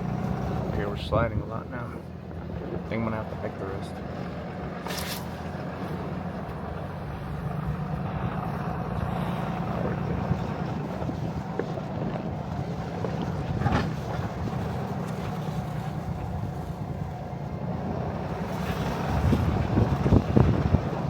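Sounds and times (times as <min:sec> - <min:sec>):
diesel truck engine running: 0:00.0 - 0:21.0
wind on microphone: 0:09.4 - 0:21.0.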